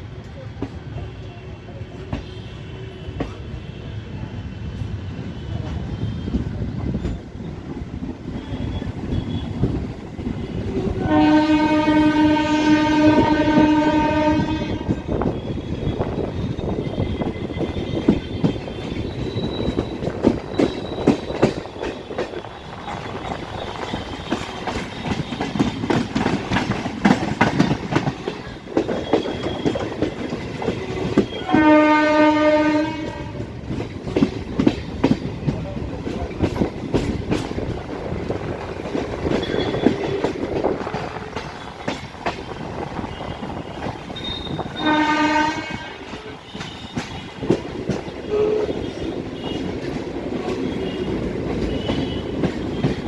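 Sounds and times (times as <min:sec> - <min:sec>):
train rumbling: 0:00.0 - 0:53.0
train horn: 0:10.4 - 0:19.8, 0:28.2 - 0:33.6, 0:39.3 - 0:40.4, 0:42.7 - 0:53.0.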